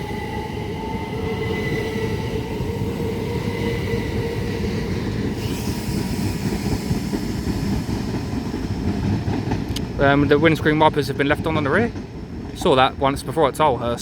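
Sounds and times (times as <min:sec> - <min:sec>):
train wheels rumbling on rails: 0:00.0 - 0:14.0
high hiss: 0:05.3 - 0:08.4.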